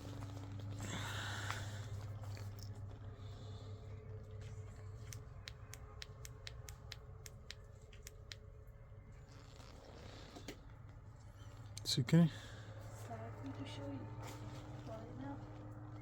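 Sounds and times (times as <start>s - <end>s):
steady low hum: 0.0s - 16.0s
light evenly spaced clicks: 4.9s - 8.5s.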